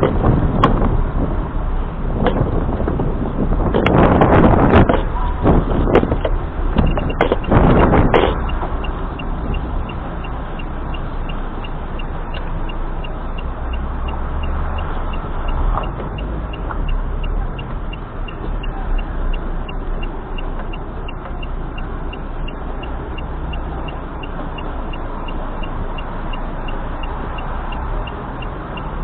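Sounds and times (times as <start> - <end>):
car road and engine noise: 0.0 - 29.0
faint even ticking: 6.2 - 29.0.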